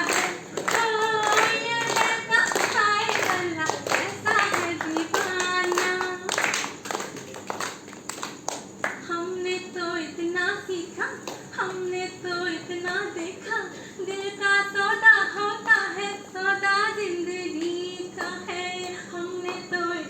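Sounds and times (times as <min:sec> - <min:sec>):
group singing: 0:00.0 - 0:06.1
hands clapping: 0:00.0 - 0:09.0, 0:17.6 - 0:19.7.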